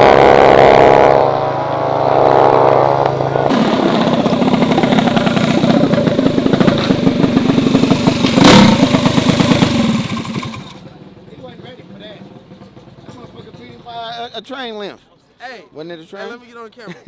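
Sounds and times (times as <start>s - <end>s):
high-revving engine: 0.0s - 11.0s
mini bike engine putter: 3.0s - 10.9s.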